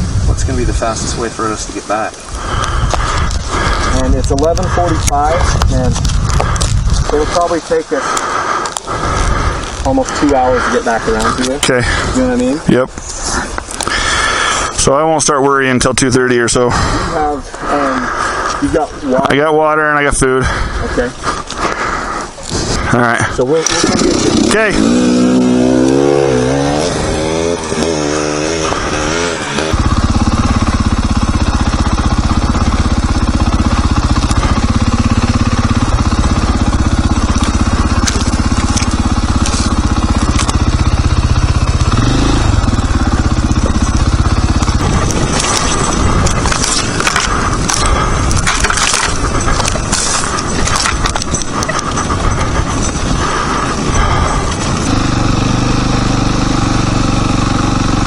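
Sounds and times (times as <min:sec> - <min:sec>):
dirt bike engine running: 0:00.0 - 0:58.0
sharp knocks and rattles: 0:42.6 - 0:53.2.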